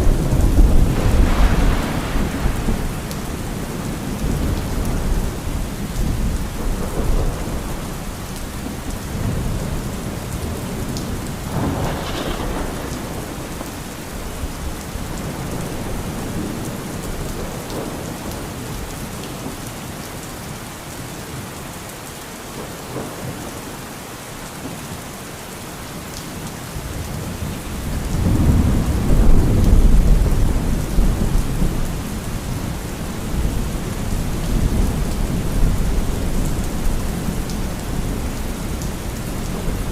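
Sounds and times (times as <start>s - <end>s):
sharp crack of thunder: 0.0s - 8.0s, 11.5s - 13.9s, 27.9s - 31.9s
low rolling thunder: 0.0s - 18.9s, 26.9s - 39.9s
steady rain: 0.0s - 39.9s.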